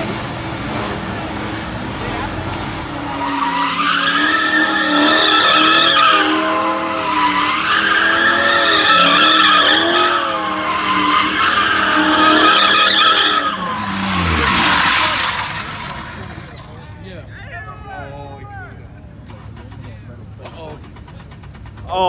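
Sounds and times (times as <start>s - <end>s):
high-revving car engine: 0.0s - 17.3s, 19.0s - 22.0s
tyres squealing: 0.4s - 22.0s.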